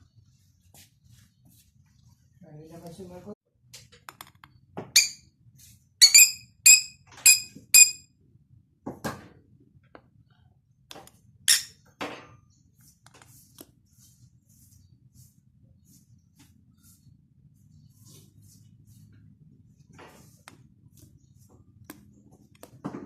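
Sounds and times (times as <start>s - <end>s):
cockatiel chirping: 6.0s - 8.0s.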